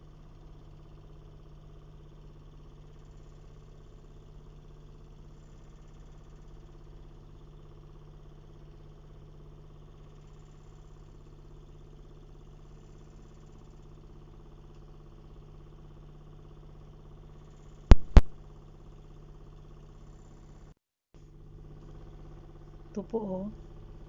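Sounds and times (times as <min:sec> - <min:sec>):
low mechanical hum: 0:00.0 - 0:24.0
sharp knocks: 0:17.9 - 0:18.3.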